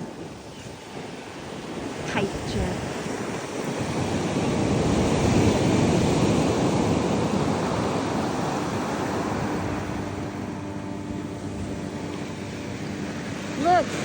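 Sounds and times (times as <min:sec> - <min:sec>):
ocean surf breaking: 0:00.0 - 0:14.0
faint motor hum: 0:04.2 - 0:14.0.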